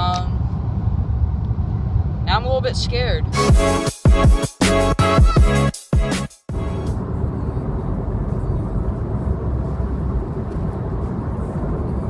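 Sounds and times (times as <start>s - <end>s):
car driving interior rumble: 6.5s - 12.0s.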